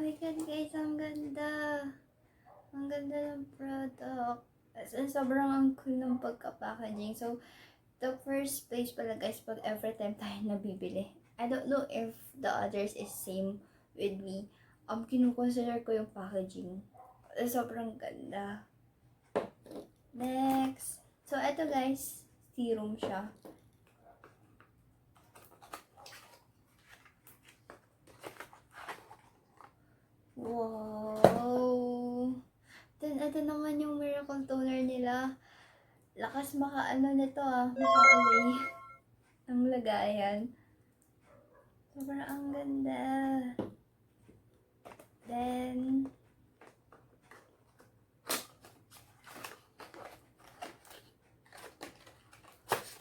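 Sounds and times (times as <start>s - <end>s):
packaging clicks and rustles: 25.2s - 29.8s, 46.6s - 53.0s.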